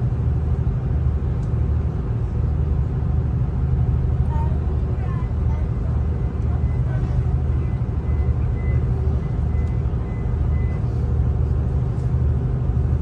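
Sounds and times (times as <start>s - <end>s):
train rumble inside carriage: 0.0s - 13.0s.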